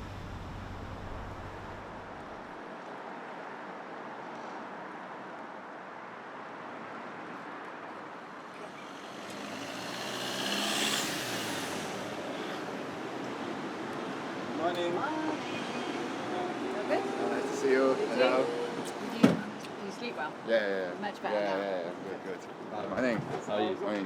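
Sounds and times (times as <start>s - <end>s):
road traffic noise: 0.0s - 24.0s
vehicle passing: 8.4s - 19.2s.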